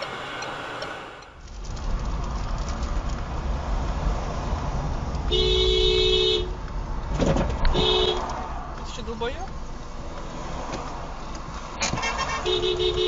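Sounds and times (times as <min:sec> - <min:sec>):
car road and engine rumble: 0:00.0 - 0:13.0
two-tone car horn honking: 0:12.0 - 0:13.0.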